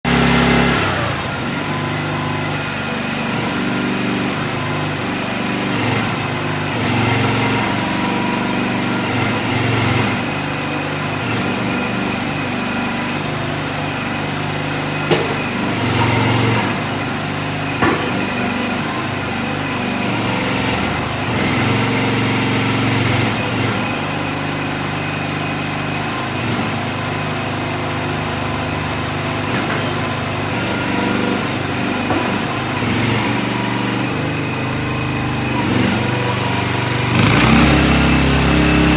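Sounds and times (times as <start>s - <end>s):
small gasoline engine running: 0.0s - 38.9s
sharp knocks: 15.1s - 15.7s.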